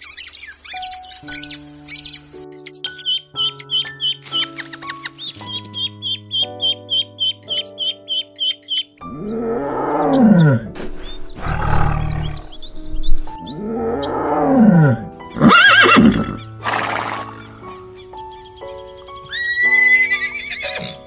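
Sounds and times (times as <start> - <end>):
ducklings peeping: 0.0 - 9.0
background music: 0.0 - 21.0
lion roaring: 9.1 - 15.5
horse whinny: 13.6 - 17.4, 19.3 - 21.0.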